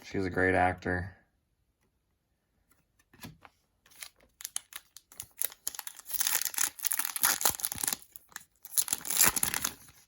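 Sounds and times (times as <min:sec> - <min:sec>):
wrapper tearing and crinkling: 0:04.0 - 0:10.0.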